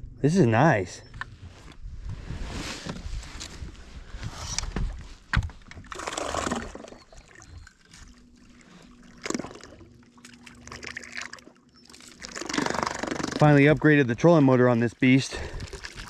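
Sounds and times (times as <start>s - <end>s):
water sloshing against boat hull: 1.1s - 16.0s
electric motor hum: 5.8s - 14.1s.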